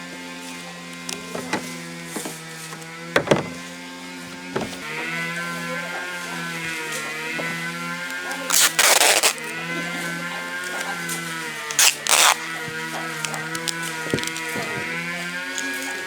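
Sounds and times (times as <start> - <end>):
small electric motor humming: 0.0 - 16.0
sharp knocks: 3.1 - 3.7.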